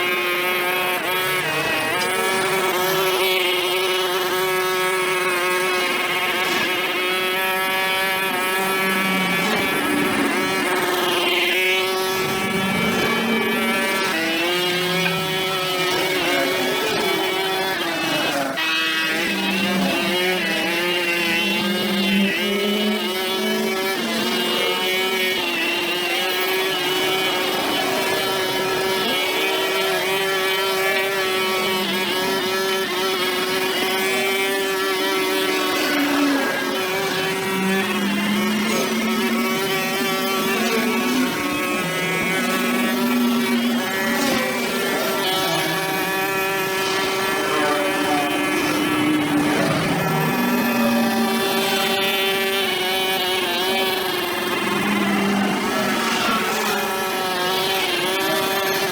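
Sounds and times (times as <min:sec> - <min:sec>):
brush cutter engine running: 0:00.0 - 0:58.9.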